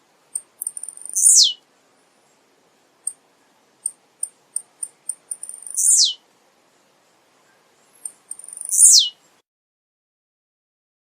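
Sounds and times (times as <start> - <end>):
bird singing high ticks: 0.3 - 1.6, 3.0 - 3.2, 3.8 - 6.2, 7.4 - 9.2.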